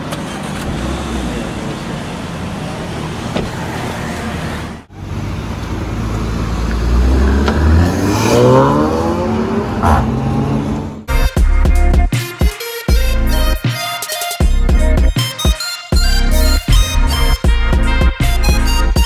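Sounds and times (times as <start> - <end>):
car engine accelerating: 0.0 - 11.1.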